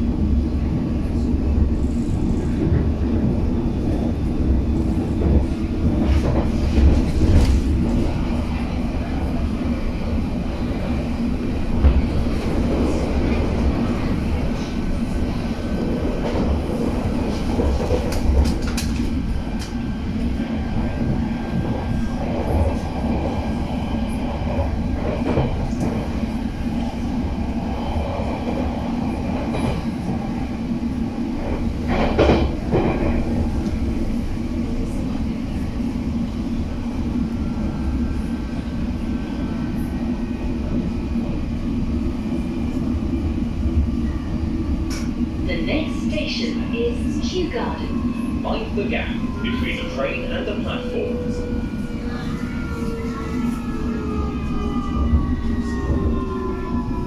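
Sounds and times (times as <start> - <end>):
train rumble of motors and wheels: 0.0 - 57.0
train knocks: 31.4 - 33.3.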